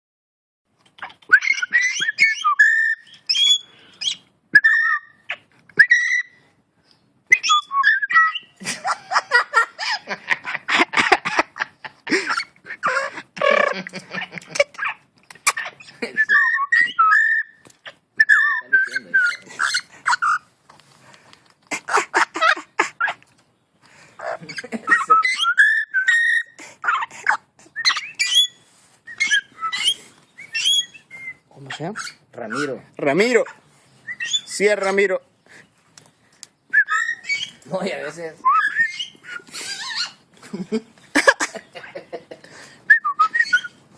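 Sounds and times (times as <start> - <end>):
bird whistling: 1.2 - 5.2, 5.8 - 6.4, 7.3 - 8.5, 15.5 - 17.6, 18.2 - 20.4, 24.9 - 26.5, 27.8 - 31.4, 34.0 - 34.6, 36.6 - 37.6, 38.4 - 40.2, 42.9 - 43.8
bird chattering: 12.3 - 20.5, 24.2 - 35.0.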